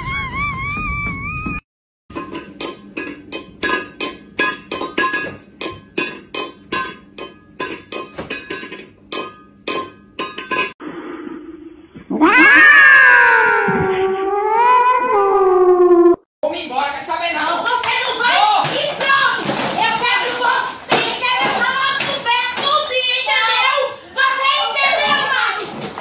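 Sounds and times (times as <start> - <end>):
cat yowling: 12.1 - 16.1.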